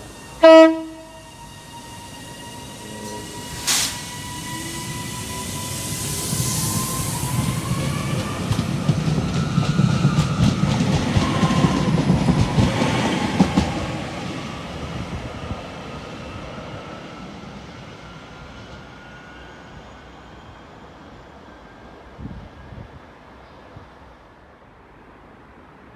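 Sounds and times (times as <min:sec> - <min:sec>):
faint high whine: 0:00.0 - 0:08.6
train wheels rumbling and clicking: 0:01.1 - 0:15.4.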